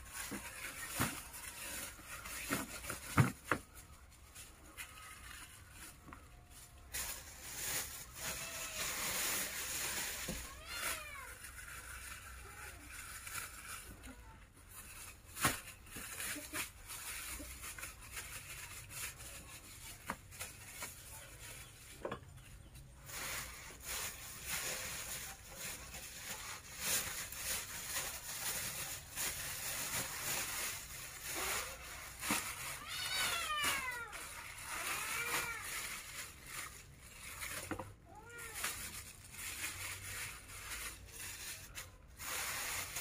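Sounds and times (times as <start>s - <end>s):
plastic bags crinkling: 0.0s - 43.0s
cat meowing: 32.8s - 34.1s.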